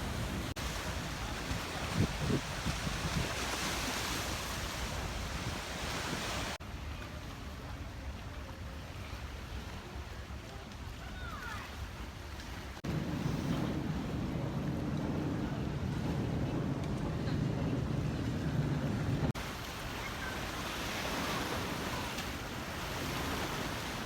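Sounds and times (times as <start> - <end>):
water washing: 0.0 - 6.6, 10.6 - 24.0
wind buffeting microphone: 0.0 - 6.6, 12.8 - 24.0
low steady rumble: 12.8 - 19.4.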